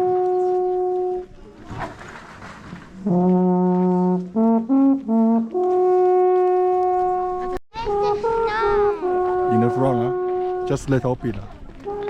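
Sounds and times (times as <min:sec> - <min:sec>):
horn playing slow tune: 0:00.0 - 0:01.4, 0:03.0 - 0:10.9.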